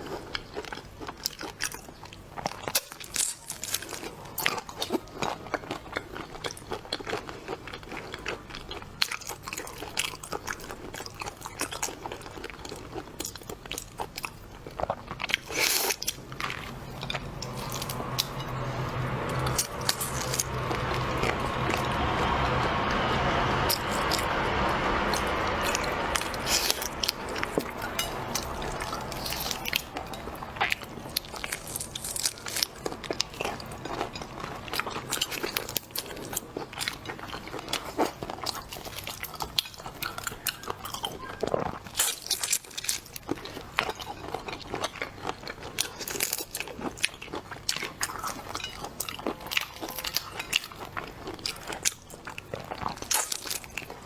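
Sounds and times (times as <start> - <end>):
seafood crunching and chewing: 0.0 - 54.0
steady noise: 15.4 - 35.5.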